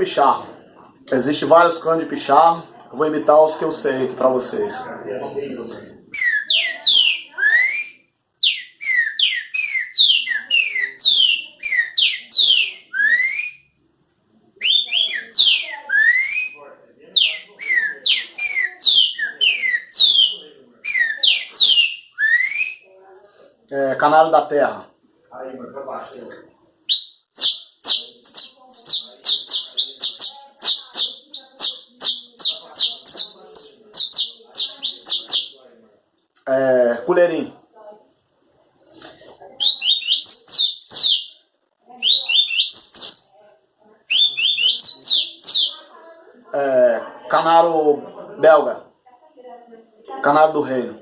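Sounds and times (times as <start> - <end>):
man imitating bird chirps: 6.2 - 7.8, 8.4 - 13.5, 17.2 - 22.6, 26.9 - 35.5, 39.6 - 41.2, 42.0 - 43.3, 44.1 - 45.7
man whistling birdsong: 6.2 - 13.6, 14.6 - 16.6, 17.2 - 22.8.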